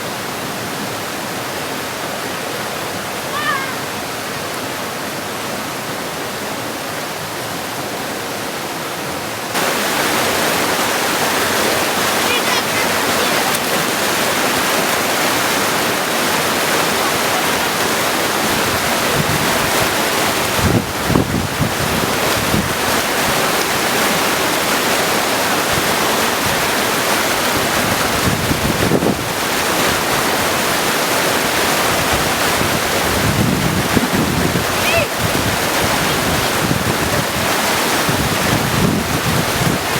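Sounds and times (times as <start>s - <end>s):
creek rushing over stones: 0.0s - 39.9s
wind buffeting microphone: 13.0s - 39.9s.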